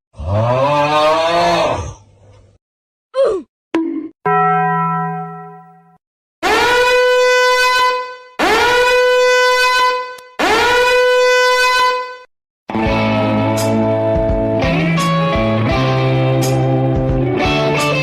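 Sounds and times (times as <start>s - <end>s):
long loud horn blasts: 6.4s - 12.3s
short lower horn tone: 6.4s - 12.3s.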